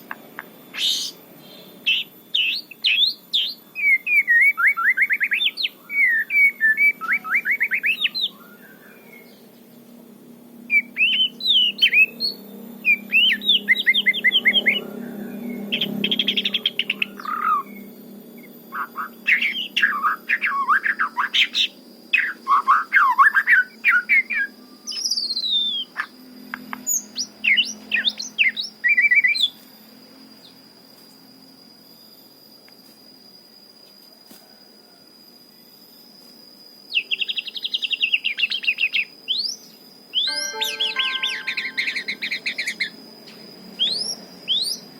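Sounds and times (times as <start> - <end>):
bird singing varied phrases: 0.7 - 9.5, 10.7 - 14.8, 18.7 - 26.1, 37.0 - 43.0
thin steady high tone: 40.2 - 43.2.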